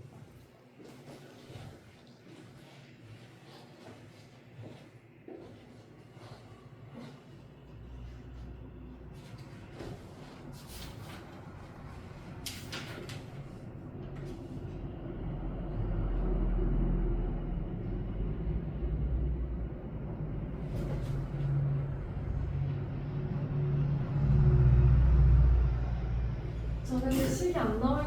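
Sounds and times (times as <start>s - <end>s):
low engine rumble: 7.6s - 28.0s.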